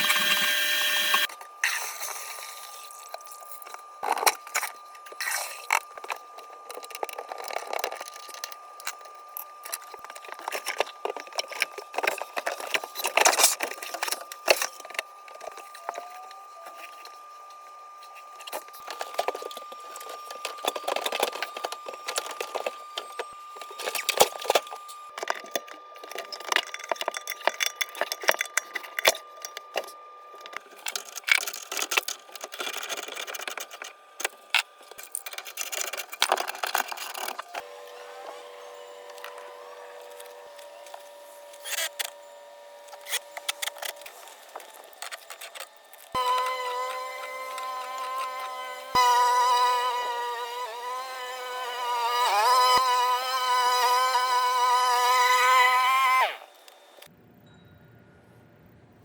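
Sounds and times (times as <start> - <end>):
hand tools and metal parts clinking: 18.0 - 42.2, 42.8 - 57.1.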